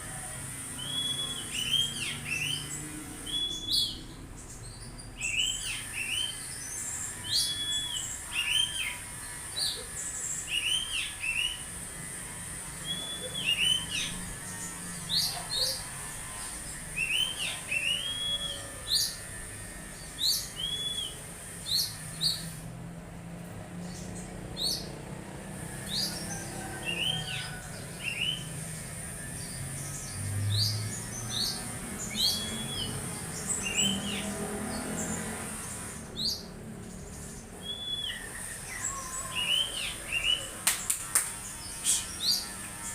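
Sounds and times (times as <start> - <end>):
bird whistling calls: 0.8 - 4.0, 5.2 - 9.0, 17.0 - 19.2, 20.4 - 22.5, 37.6 - 40.5.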